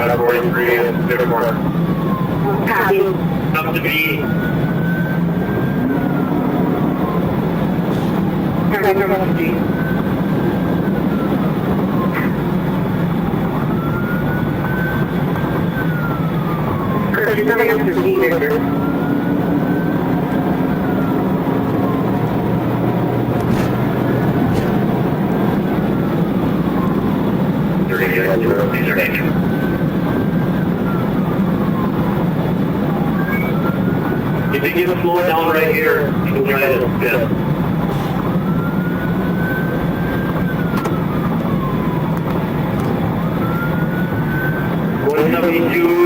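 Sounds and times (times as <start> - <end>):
engine and road noise: 0.0 - 46.0
police siren wailing: 0.0 - 46.0
vehicle drone: 17.9 - 30.2.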